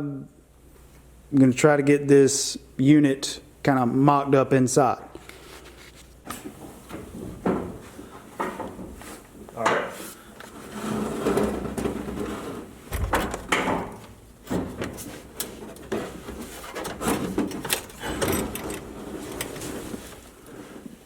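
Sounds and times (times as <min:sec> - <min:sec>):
clunks knocks and scraping: 0:09.6 - 0:20.2
heavy thump: 0:12.9 - 0:14.9.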